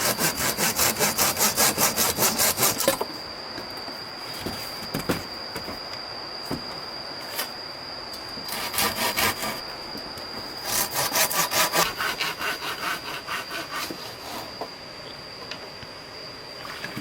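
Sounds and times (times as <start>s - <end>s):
hand saw cutting wood: 0.0s - 3.0s, 8.5s - 9.6s, 10.6s - 14.5s.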